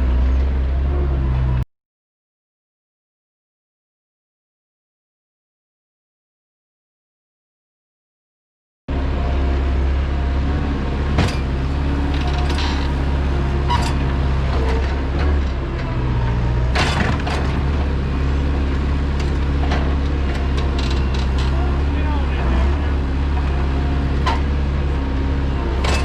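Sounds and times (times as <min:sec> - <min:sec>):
vehicle engine running: 0:08.9 - 0:26.0
machinery clicks and creaks: 0:11.2 - 0:18.0, 0:19.0 - 0:26.0.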